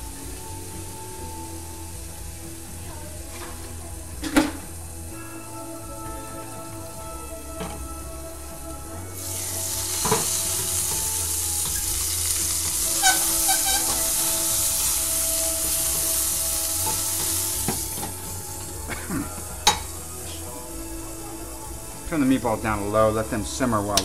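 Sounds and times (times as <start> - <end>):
meatballs sizzling in oil: 7.0 - 24.0
wooden spoon scraping: 9.4 - 18.7.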